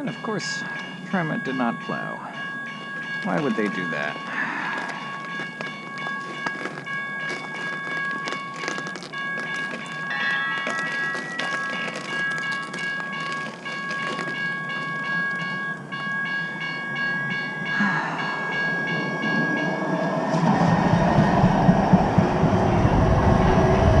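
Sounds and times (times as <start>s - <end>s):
fast pulsing ring: 0.0s - 7.8s
train passing: 0.0s - 8.2s, 14.3s - 24.0s.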